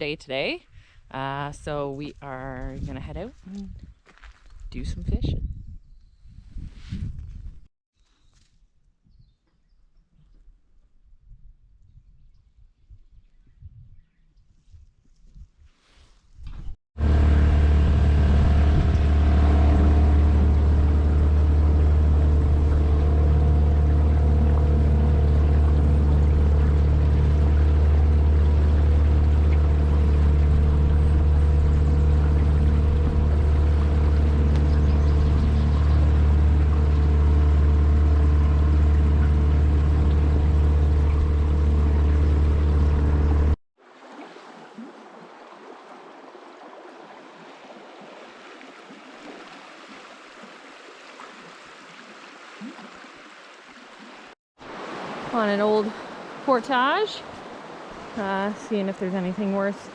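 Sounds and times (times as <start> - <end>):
wind noise: 0.6 - 7.7, 10.2 - 23.2
outboard motor running: 17.0 - 43.6
flowing water: 17.0 - 59.9
water noise: 17.0 - 59.9.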